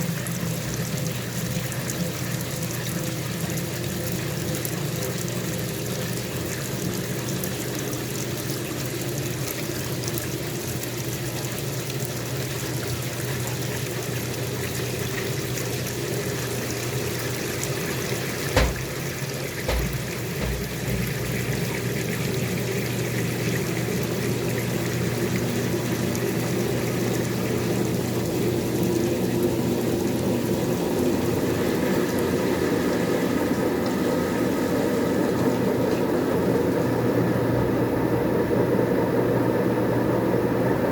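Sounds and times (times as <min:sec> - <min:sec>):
washing machine drain pump humming: 0:00.0 - 0:40.9
knocks: 0:18.5 - 0:21.8.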